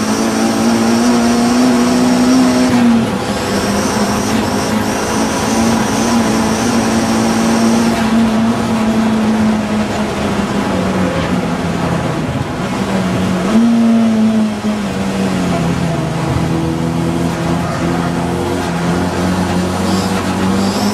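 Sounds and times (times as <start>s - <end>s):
racing car engine revving: 0.0s - 20.9s.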